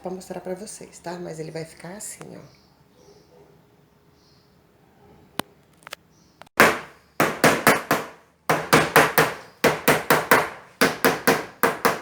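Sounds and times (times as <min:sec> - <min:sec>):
hammer driving nails into wood: 0:06.6 - 0:12.0.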